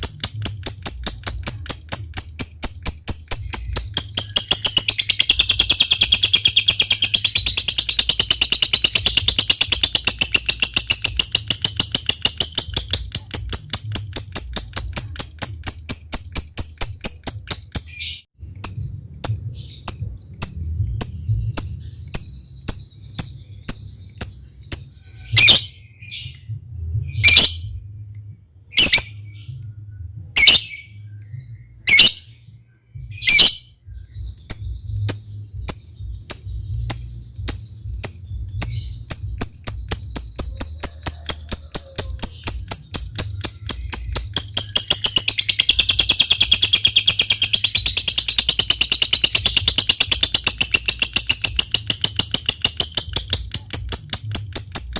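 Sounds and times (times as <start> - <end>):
lovebird ticking calls: 0.0 - 25.6, 34.2 - 54.9
lovebird chattering trill: 0.0 - 26.4, 34.2 - 54.9
low hum: 18.4 - 54.9.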